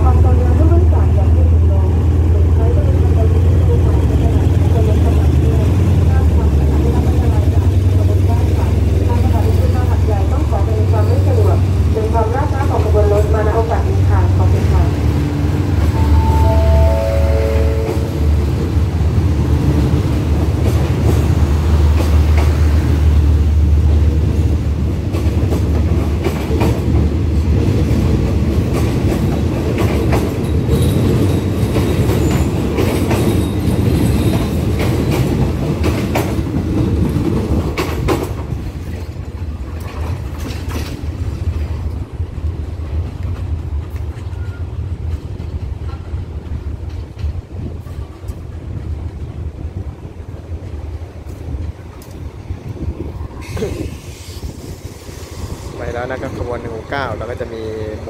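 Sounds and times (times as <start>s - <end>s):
train rumble: 0.0s - 58.0s
wheels clacking over rail joints: 23.8s - 49.3s.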